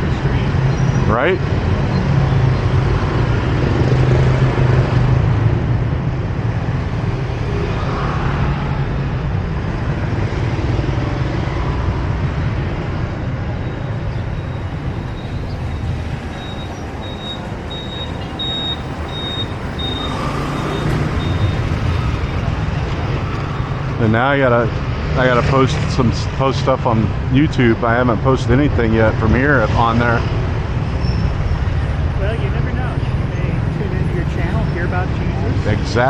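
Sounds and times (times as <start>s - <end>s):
street traffic rumble: 0.0s - 36.0s
faint high-pitched beeps: 13.6s - 22.4s.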